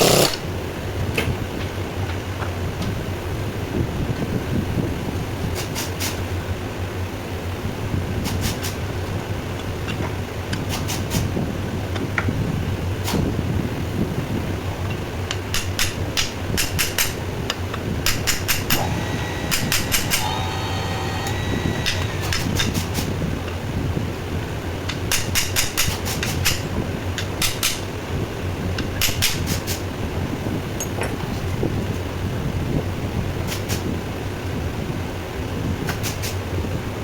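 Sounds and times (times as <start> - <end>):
steady low hum: 17.2 - 24.9.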